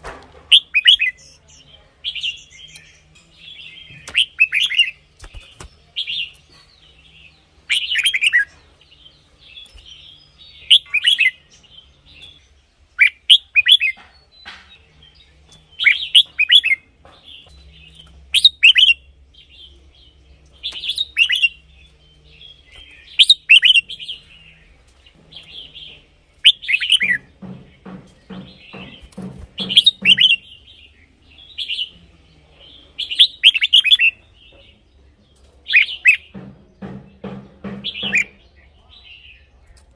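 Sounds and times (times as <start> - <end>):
low knocks: 27.2 - 30.5, 36.3 - 38.4.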